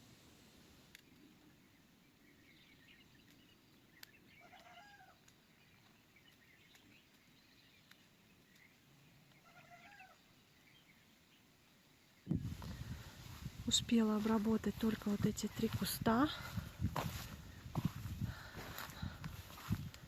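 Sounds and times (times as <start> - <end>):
faint clicks: 3.1 - 9.5
faint animal calls: 4.3 - 5.4, 9.2 - 10.4.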